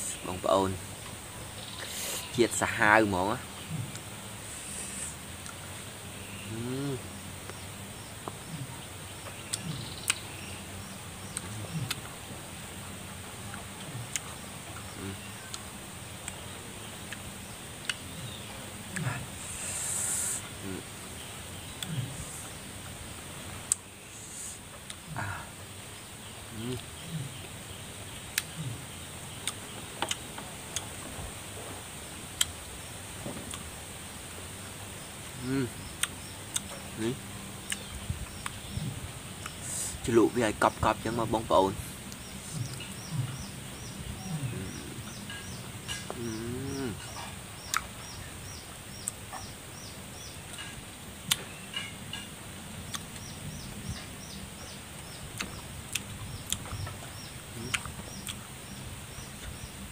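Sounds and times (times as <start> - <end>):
faint steady hiss: 0.0 - 59.9
high insect drone: 0.0 - 59.9
man humming mm: 3.6 - 5.2, 6.5 - 7.1, 8.4 - 8.9, 11.3 - 12.1, 13.6 - 14.3, 15.0 - 15.3, 18.2 - 20.9, 21.8 - 22.7, 24.2 - 25.6, 26.5 - 27.5, 28.4 - 29.0, 35.4 - 35.8, 38.7 - 40.1, 42.4 - 45.2, 46.1 - 47.3, 57.5 - 57.9
chewing clicks and smacks: 11.3 - 12.1, 13.5 - 14.3, 29.4 - 30.2, 36.0 - 36.8, 47.1 - 47.9, 49.0 - 49.5, 51.3 - 51.9, 52.9 - 53.2, 55.4 - 56.7, 57.6 - 58.4.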